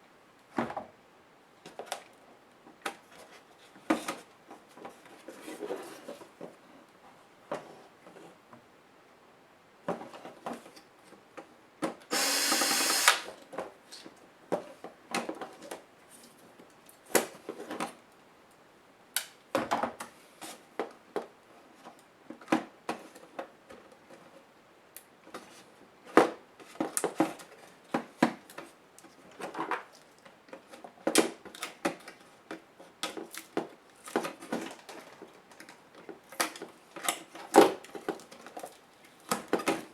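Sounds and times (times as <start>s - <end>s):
electric screwdriver whir: 12.1s - 13.3s.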